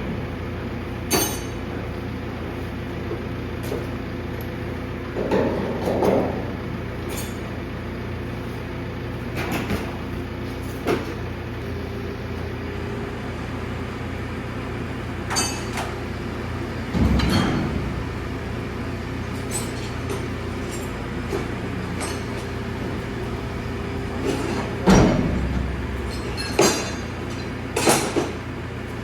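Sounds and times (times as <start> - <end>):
metallic clanks and knocks: 5.1 - 7.4, 15.3 - 16.0, 16.8 - 28.4
engine humming: 11.4 - 29.0.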